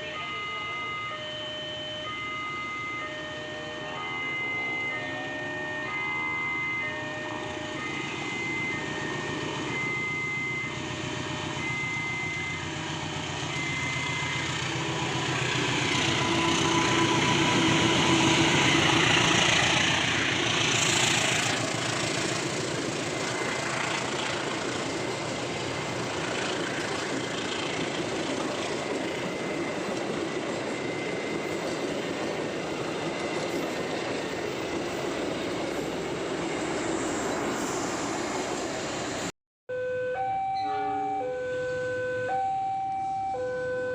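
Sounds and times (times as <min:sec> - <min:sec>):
train passing on rails: 0:00.0 - 0:39.3
steady repeating beep: 0:07.8 - 0:12.8, 0:13.4 - 0:14.7.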